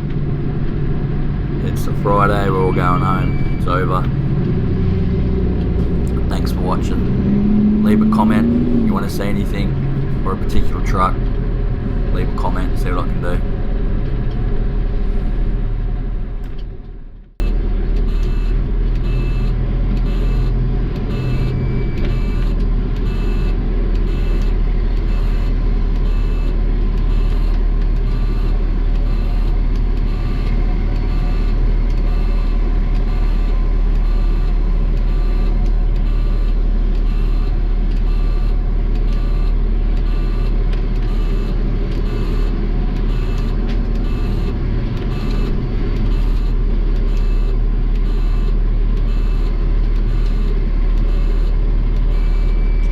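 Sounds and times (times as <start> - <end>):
diesel engine rumble: 0.0 - 52.9
repeating beeps: 1.7 - 4.3.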